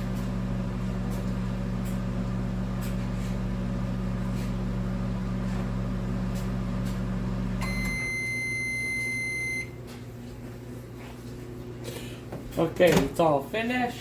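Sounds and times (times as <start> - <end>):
microwave oven humming: 0.0 - 14.0
long high beep: 7.6 - 9.7.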